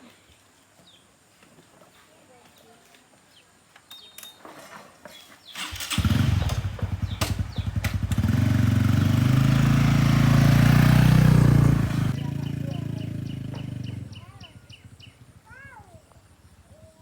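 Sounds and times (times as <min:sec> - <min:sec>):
small motorcycle engine starting: 0:05.5 - 0:16.8.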